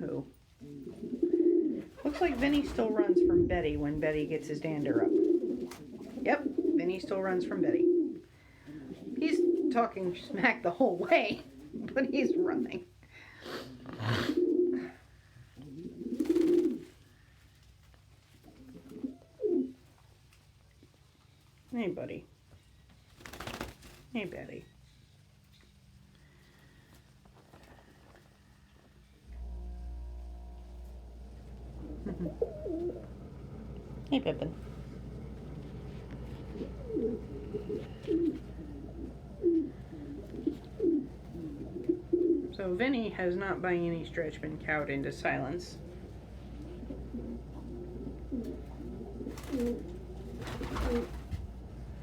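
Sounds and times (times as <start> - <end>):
pigeons cooing: 0.5 - 12.8, 13.7 - 15.0, 15.6 - 17.0, 18.5 - 19.8, 29.4 - 42.8, 45.3 - 51.8.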